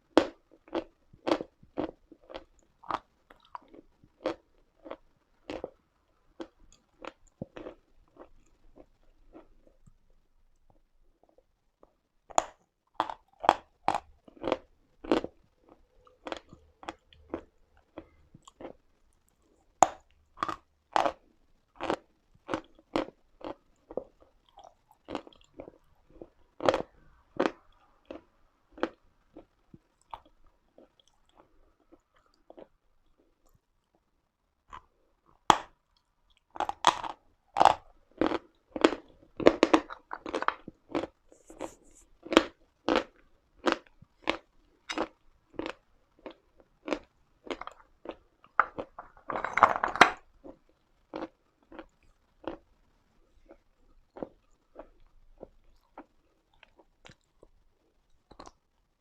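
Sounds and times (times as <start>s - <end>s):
chalk crunching when chewed: 36.3s - 52.6s.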